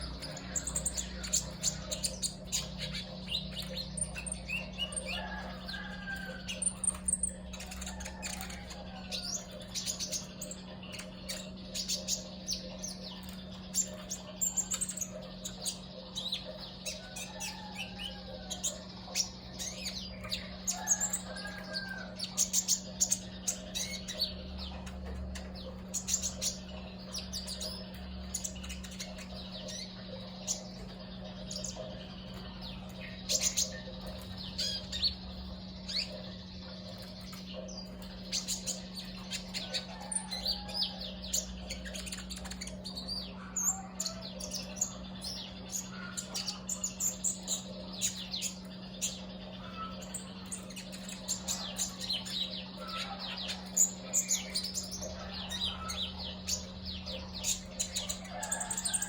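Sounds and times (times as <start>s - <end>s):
songbird chirping and warbling: 0.0s - 59.0s
steady low hum: 0.0s - 59.0s.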